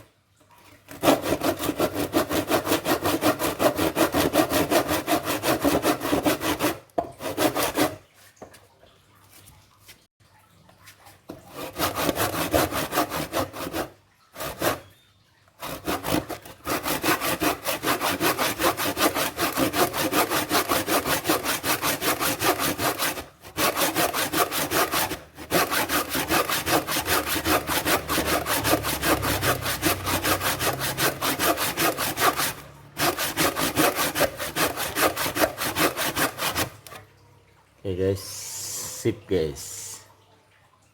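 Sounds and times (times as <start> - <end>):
hand saw cutting wood: 0.9 - 8.0, 11.3 - 14.9, 15.6 - 37.1.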